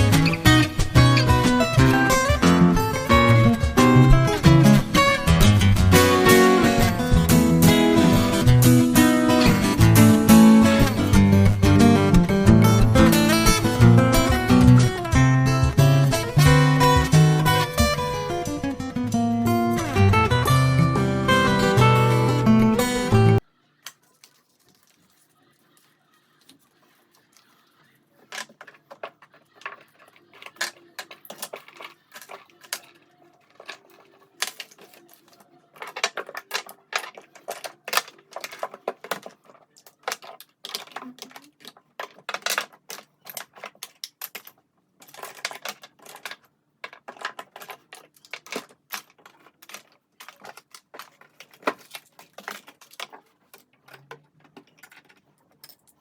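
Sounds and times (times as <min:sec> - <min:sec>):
small hard objects clicking: 0:28.3 - 0:56.0.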